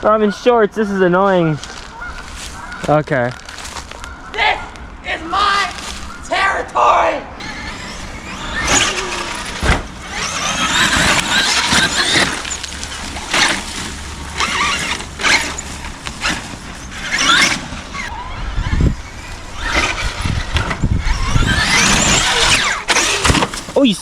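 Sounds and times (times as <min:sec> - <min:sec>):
electric motor whine: 0:07.4 - 0:23.7.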